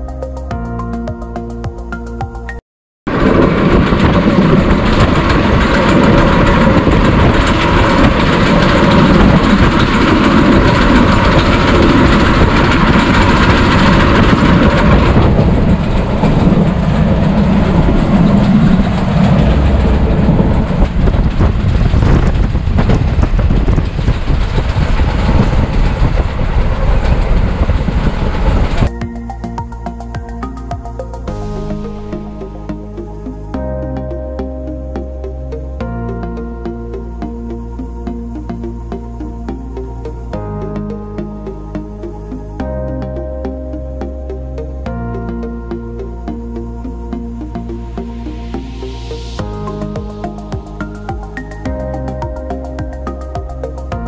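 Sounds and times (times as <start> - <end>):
train wheels on track: 3.2 - 32.7.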